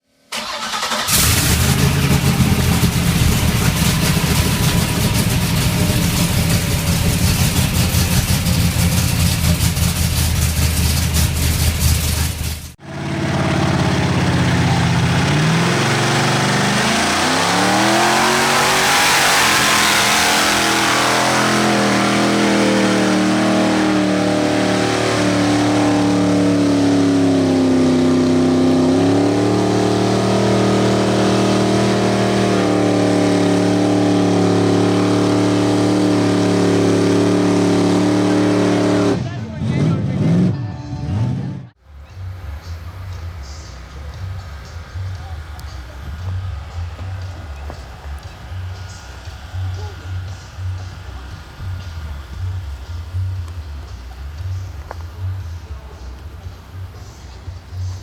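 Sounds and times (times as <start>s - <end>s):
truck engines running at high revs: 0.1s - 58.0s
engine revving up and down: 0.3s - 58.0s.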